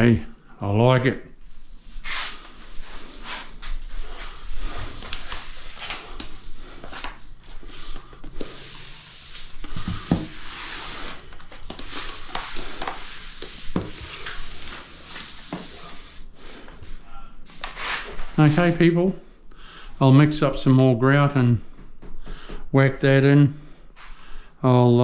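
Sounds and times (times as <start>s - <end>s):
grout float scraping tiles: 7.8s - 16.2s.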